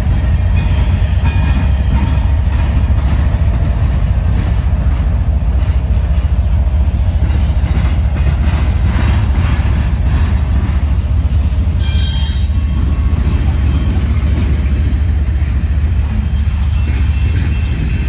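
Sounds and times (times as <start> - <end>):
freight train rumbling past: 0.0 - 18.0
rail noise: 0.0 - 18.0.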